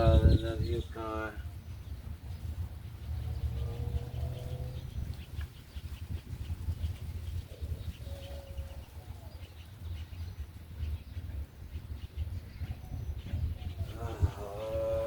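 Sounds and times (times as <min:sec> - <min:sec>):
faint birds chirping: 0:00.0 - 0:15.0
low microphone rumble: 0:00.0 - 0:15.0.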